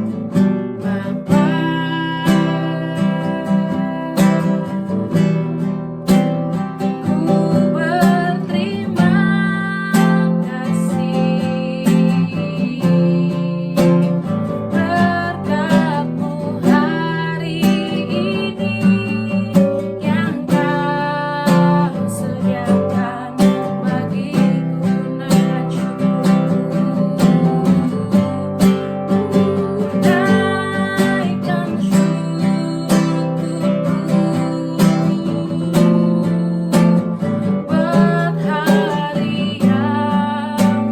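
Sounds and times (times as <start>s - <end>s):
strummed acoustic guitar: 0.0s - 40.9s
person singing praise song: 14.7s - 40.9s.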